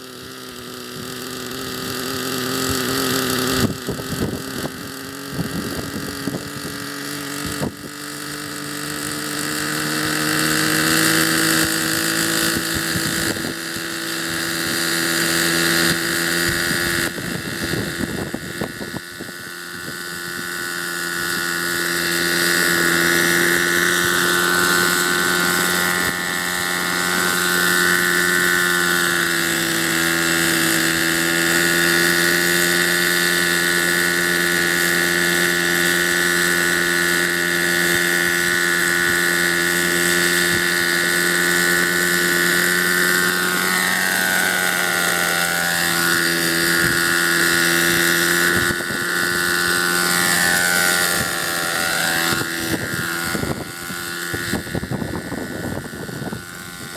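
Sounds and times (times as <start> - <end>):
rc helicopter engine running: 0.0 - 56.9.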